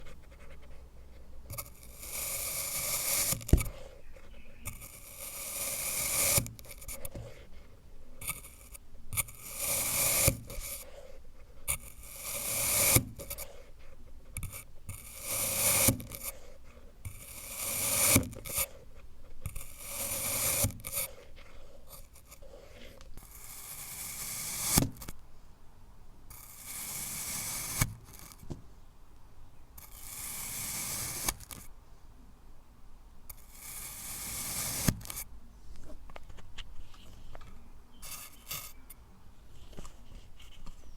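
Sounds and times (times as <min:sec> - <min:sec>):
blade slicing kinetic sand: 0:01.5 - 0:03.9, 0:04.6 - 0:07.1, 0:08.2 - 0:11.0, 0:11.7 - 0:13.6, 0:14.4 - 0:18.8, 0:19.4 - 0:21.3, 0:21.9 - 0:25.1, 0:26.3 - 0:28.4, 0:29.8 - 0:31.6, 0:33.3 - 0:35.2, 0:38.0 - 0:38.8.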